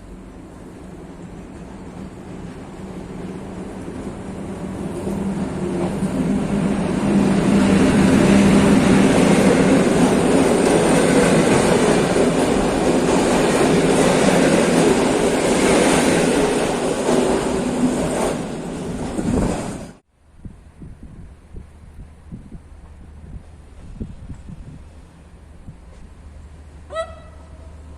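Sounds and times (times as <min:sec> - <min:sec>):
locomotive hum: 0:00.0 - 0:20.0
train wheels rumbling on rail: 0:00.0 - 0:27.9.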